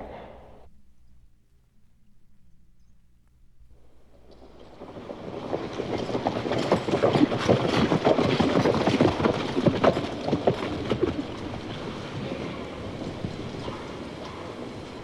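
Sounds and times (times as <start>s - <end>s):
hoofbeats on dirt road: 4.0s - 15.0s.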